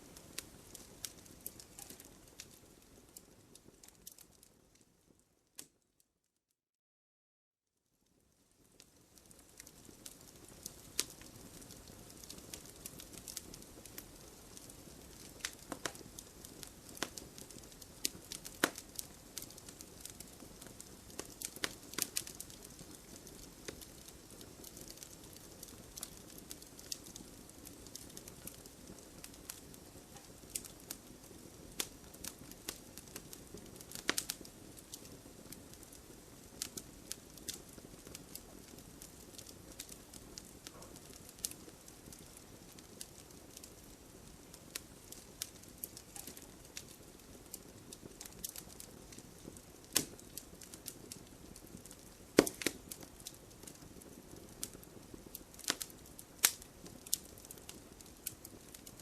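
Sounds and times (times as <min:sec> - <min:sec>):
burning logs crackling and popping: 0:00.0 - 0:05.8, 0:08.1 - 0:59.0
flame rushing: 0:51.6 - 0:53.0.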